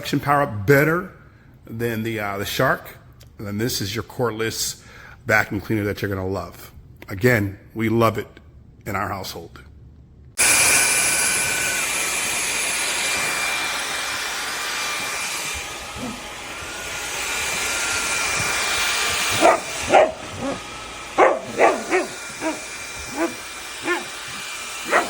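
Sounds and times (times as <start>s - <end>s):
vacuum cleaner whine: 10.4s - 25.0s
dog barking: 16.0s - 16.3s, 19.1s - 20.6s, 21.2s - 25.0s.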